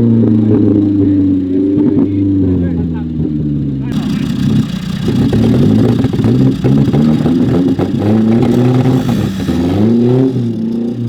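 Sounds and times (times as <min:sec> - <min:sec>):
engine revving hard: 0:03.9 - 0:11.0.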